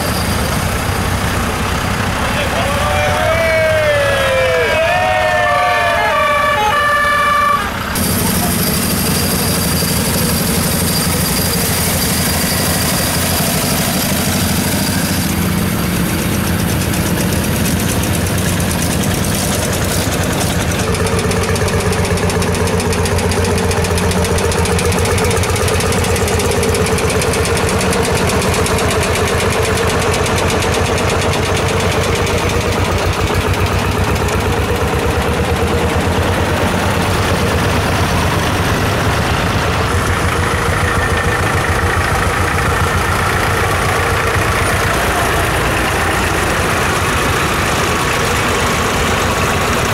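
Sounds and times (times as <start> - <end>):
tractor engines chugging: 0.0 - 49.9.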